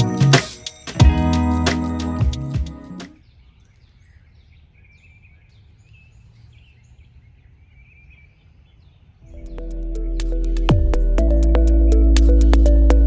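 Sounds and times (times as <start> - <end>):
guitar music: 0.0 - 3.1, 9.3 - 13.0.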